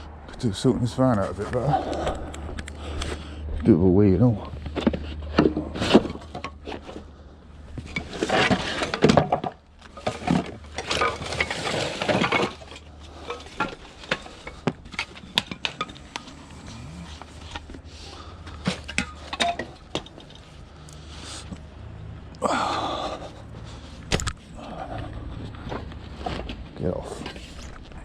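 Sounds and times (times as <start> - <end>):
steady low hum: 0.0 - 28.0
scrap metal clattering: 7.7 - 21.5.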